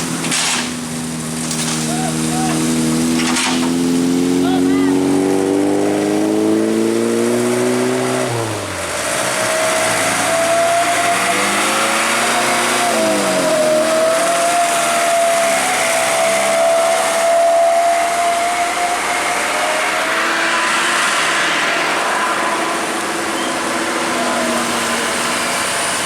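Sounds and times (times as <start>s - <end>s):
road noise: 0.0s - 26.0s
vehicle engine under load: 0.0s - 26.0s
high whine: 7.8s - 26.0s.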